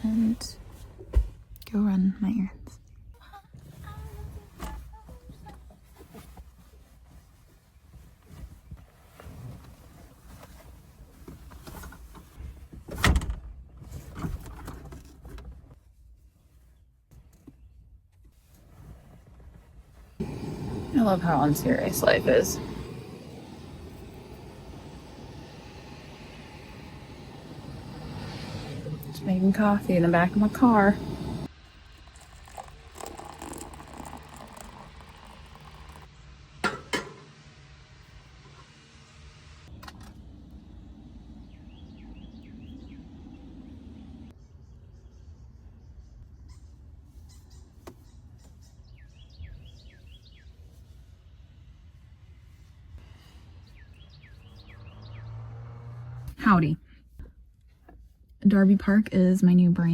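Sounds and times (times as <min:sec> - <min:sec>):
rustling and handling noises: 0:03.5 - 0:12.9, 0:13.8 - 0:20.2
coffee grinder grinding rattle: 0:31.9 - 0:36.1.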